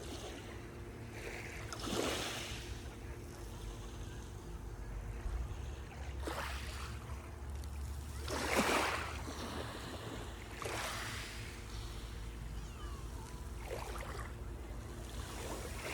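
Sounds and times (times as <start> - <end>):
sea waves washing onto shore: 5.7 - 15.9
steady low rumble: 9.2 - 15.9.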